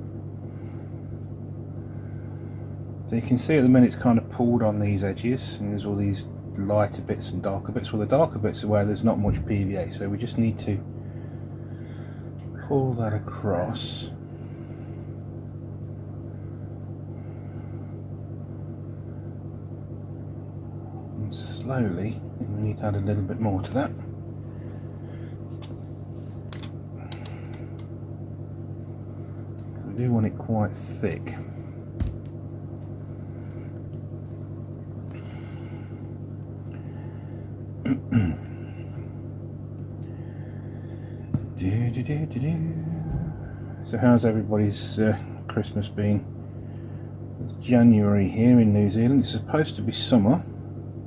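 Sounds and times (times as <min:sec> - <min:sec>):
electric heater humming: 0:00.0 - 0:51.0
person clearing throat: 0:37.8 - 0:38.6.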